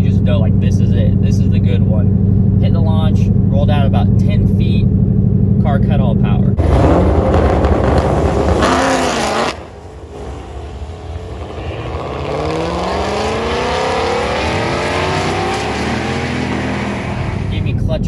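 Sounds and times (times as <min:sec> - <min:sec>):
car engine launching hard: 0:06.2 - 0:18.0.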